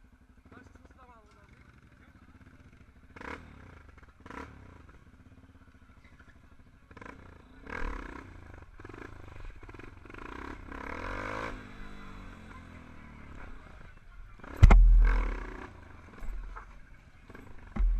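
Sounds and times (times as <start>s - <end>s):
motorcycle engines rumbling: 0.0s - 17.9s
sharp knocks: 14.6s - 15.5s.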